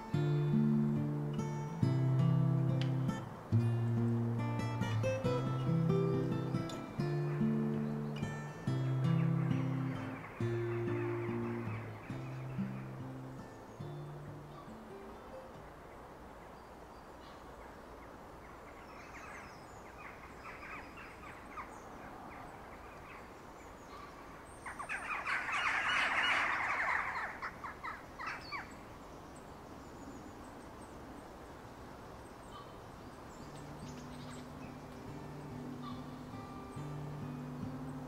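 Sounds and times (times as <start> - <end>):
rain on leaves: 0.0 - 9.1.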